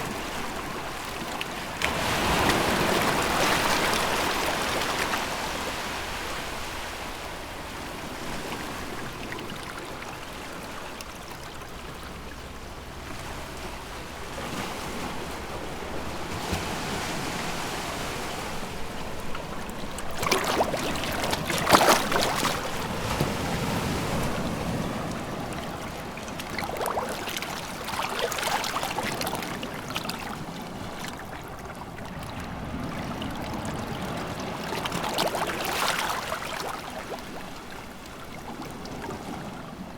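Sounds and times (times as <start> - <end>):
sea waves washing ashore: 0.0 - 39.9
wave breaking with splash: 15.8 - 25.6.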